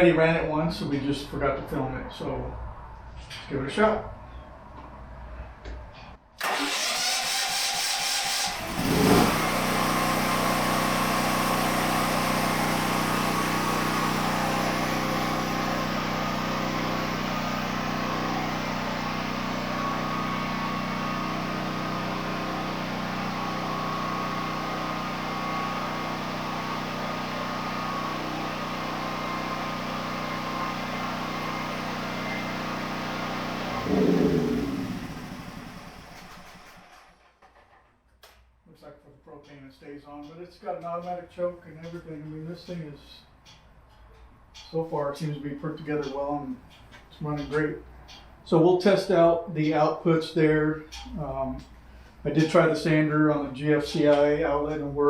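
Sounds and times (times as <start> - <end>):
generator engine running: 6.4 - 37.2
electric starter cranking: 6.4 - 37.8.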